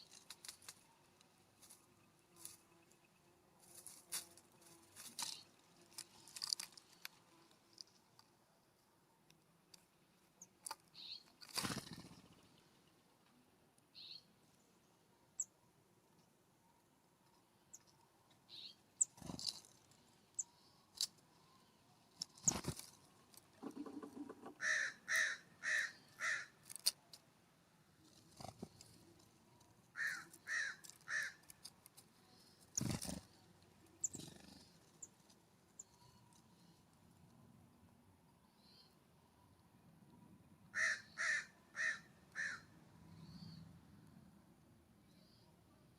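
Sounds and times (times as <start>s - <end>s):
small birds chirping: 9.6s - 13.2s, 13.9s - 15.6s, 17.3s - 26.5s, 28.0s - 36.9s
crow calling harshly: 24.6s - 26.6s, 30.0s - 31.4s, 40.8s - 42.7s.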